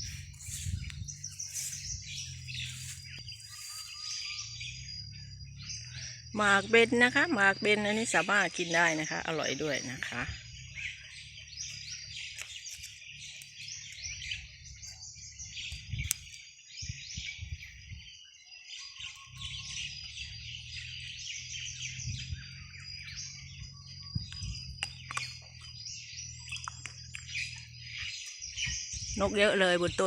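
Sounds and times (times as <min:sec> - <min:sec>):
low rumble: 0:00.0 - 0:08.2
flock of birds chirping: 0:00.0 - 0:30.0.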